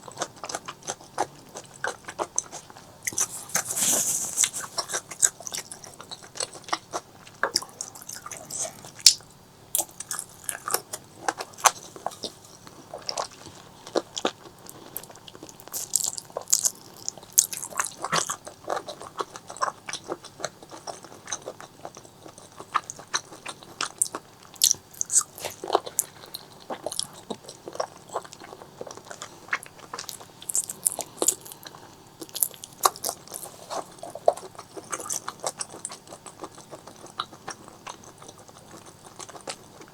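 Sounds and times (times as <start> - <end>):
crunchy chewing: 0.0 - 39.9
wet mouth clicks: 30.1 - 31.7.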